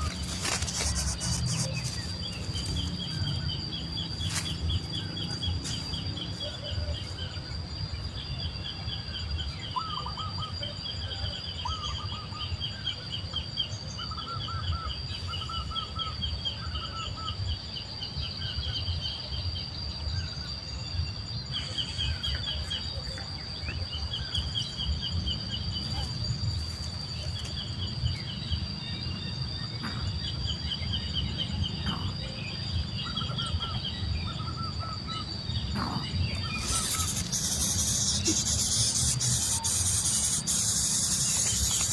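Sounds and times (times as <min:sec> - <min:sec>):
insect drone: 0:00.0 - 0:41.9
high-pitched bird chirping: 0:36.4 - 0:41.9.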